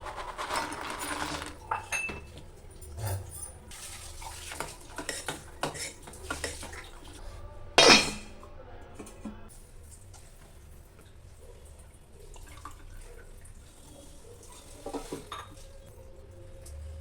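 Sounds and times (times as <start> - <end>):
loud clatter of dishes: 0.1 - 2.4, 7.8 - 8.4
dishes clinking: 1.0 - 6.9, 7.8 - 8.4, 14.8 - 15.7.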